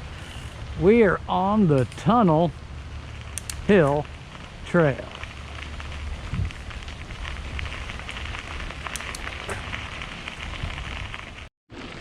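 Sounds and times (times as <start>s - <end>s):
bicycle tyres on gravel: 0.0s - 12.0s
wind rumble on microphone: 2.8s - 12.0s.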